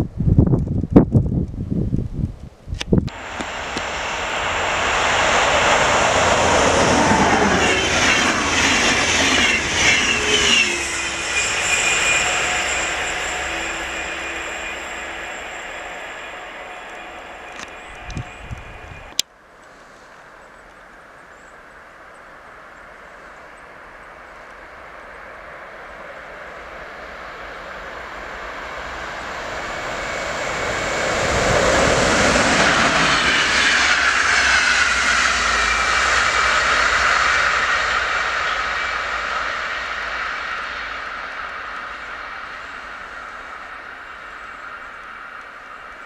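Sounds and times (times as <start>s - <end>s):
whine dropping in pitch: 2.9s - 19.2s
passenger train passing fast: 3.1s - 19.2s, 21.3s - 46.0s.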